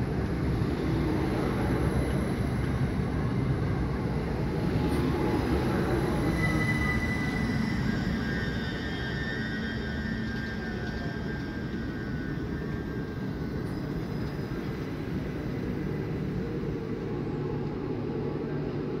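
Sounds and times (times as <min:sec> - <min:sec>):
train wheels rumbling on rails: 0:00.0 - 0:19.0
faint high squeal: 0:04.8 - 0:15.1.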